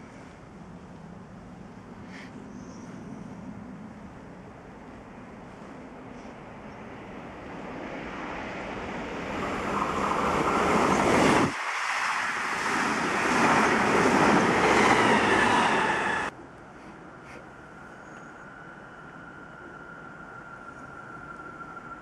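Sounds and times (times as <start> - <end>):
electric train passing at speed: 0.0 - 22.0
faint whine: 16.3 - 22.0.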